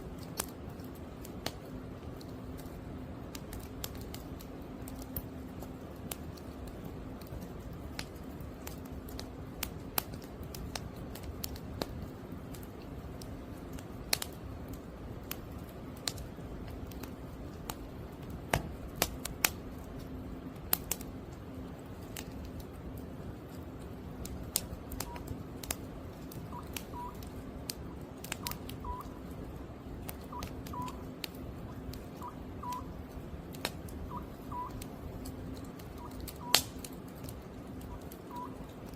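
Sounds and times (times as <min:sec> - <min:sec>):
firewood crackling and popping: 0:00.0 - 0:38.9
cuckoo calling: 0:26.5 - 0:27.2, 0:28.4 - 0:29.2, 0:30.2 - 0:31.1, 0:32.1 - 0:33.0, 0:34.1 - 0:34.8, 0:35.9 - 0:36.6, 0:37.9 - 0:38.7.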